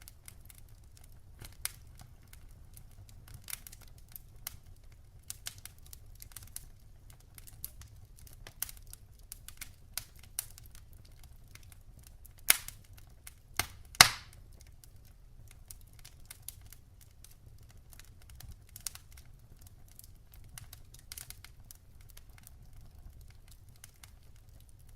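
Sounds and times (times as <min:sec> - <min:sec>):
wood fire crackling: 0:00.0 - 0:24.9.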